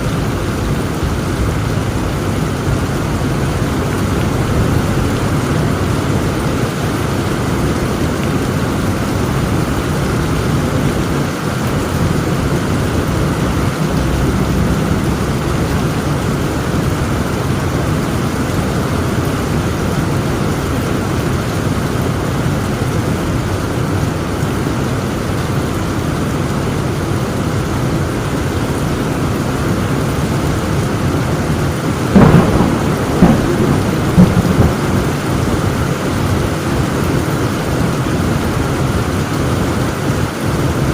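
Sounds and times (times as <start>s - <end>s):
heavy rain: 0.0s - 40.9s
thunder cracks: 11.9s - 17.6s, 32.1s - 36.1s.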